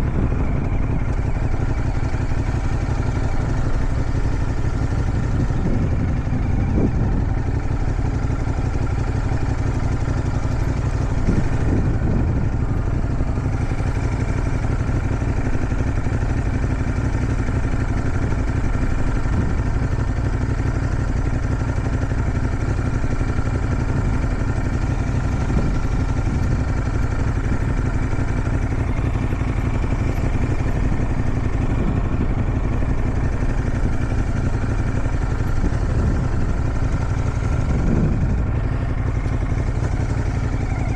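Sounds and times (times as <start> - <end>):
wind noise: 0.0 - 14.6, 23.8 - 40.9
motorcycle engine running: 0.0 - 40.9.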